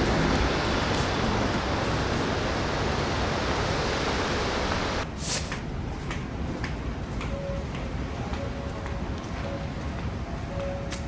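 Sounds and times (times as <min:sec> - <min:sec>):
brief sharp hiss: 0:05.0 - 0:05.6.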